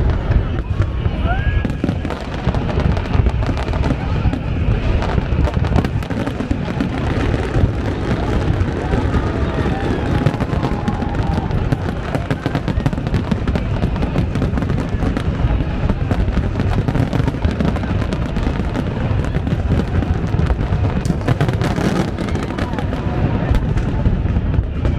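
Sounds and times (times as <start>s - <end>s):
fireworks crackling: 0.0s - 24.9s
low rumble of fireworks bursts: 0.0s - 24.9s
sharp fireworks cracks: 0.0s - 24.9s.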